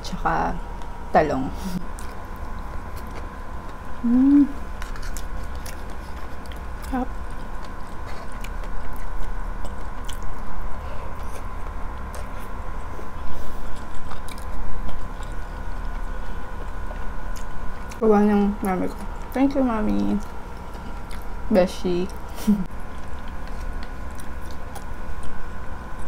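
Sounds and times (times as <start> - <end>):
chewing soft food: 1.8 - 26.0
person humming: 4.0 - 4.6.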